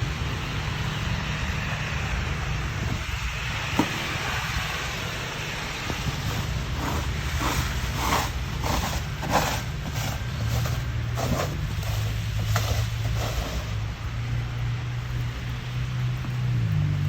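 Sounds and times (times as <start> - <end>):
snow shovel scraping ground: 3.2 - 14.1.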